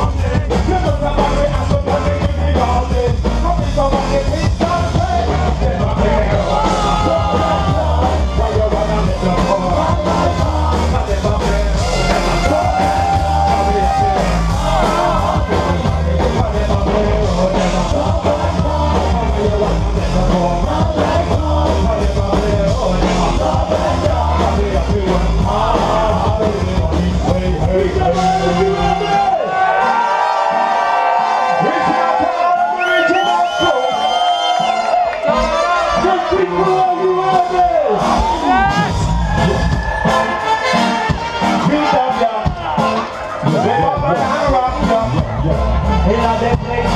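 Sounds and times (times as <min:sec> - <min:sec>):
person singing: 0:00.0 - 0:29.1
heavy bass line: 0:00.0 - 0:29.4, 0:34.9 - 0:46.9
live dub band playing: 0:00.0 - 0:46.9.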